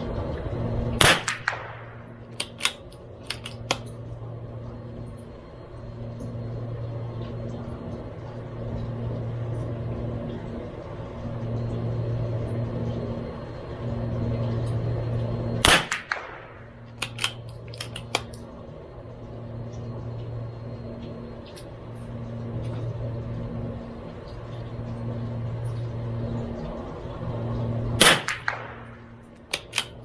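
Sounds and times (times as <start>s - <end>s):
steady low hum: 0.0s - 30.0s
rifle shot: 1.0s - 3.7s, 15.6s - 18.3s, 28.0s - 30.0s
rifle bolt clicks: 2.4s - 3.9s, 17.0s - 18.4s, 29.5s - 30.0s.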